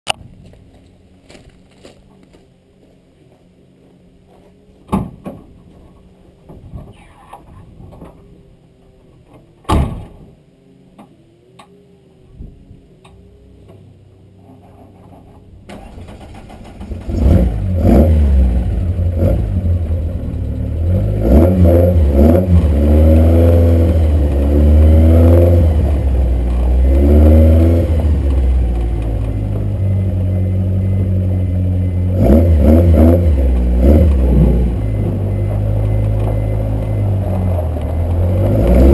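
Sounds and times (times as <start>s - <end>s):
sharp knocks and clunks: 4.9s - 8.2s
car engine starting and revving: 15.6s - 38.9s.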